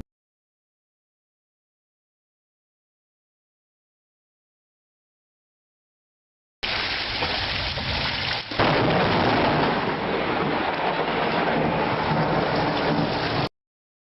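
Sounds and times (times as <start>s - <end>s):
heavy rain: 6.6s - 13.5s
loud thunderclap: 7.2s - 13.5s.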